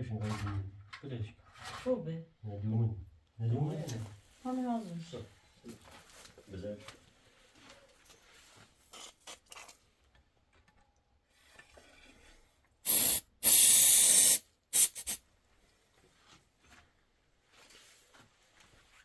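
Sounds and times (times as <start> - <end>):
spray hissing in bursts: 12.9 - 15.2.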